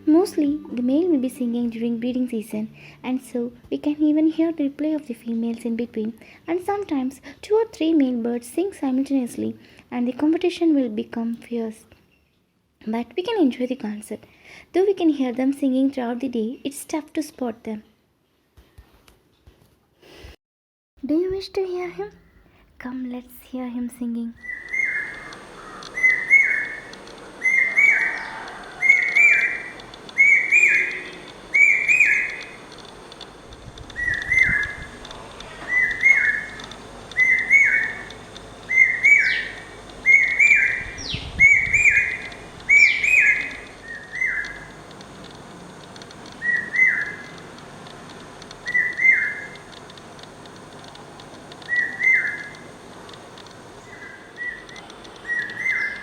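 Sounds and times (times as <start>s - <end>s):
bird singing whistled phrases: 24.4s - 25.4s, 26.0s - 32.6s, 34.0s - 35.0s, 35.6s - 36.6s, 37.2s - 38.1s, 38.7s - 44.7s, 46.4s - 47.3s, 48.6s - 49.6s, 51.7s - 52.6s, 53.8s - 56.0s.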